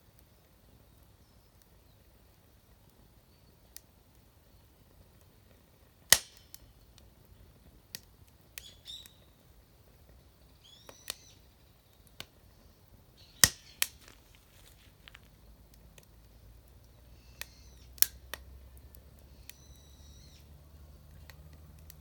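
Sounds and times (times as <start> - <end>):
sharp cracks and clicks: 6.1 - 7.1, 13.4 - 19.7, 21.0 - 22.0
birds chirping: 8.5 - 9.5, 10.1 - 15.6, 16.2 - 18.0, 19.2 - 21.9.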